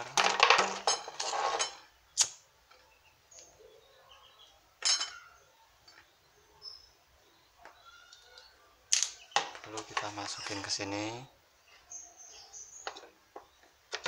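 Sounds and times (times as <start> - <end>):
small hard objects clattering: 0.0 - 1.9, 8.9 - 10.8.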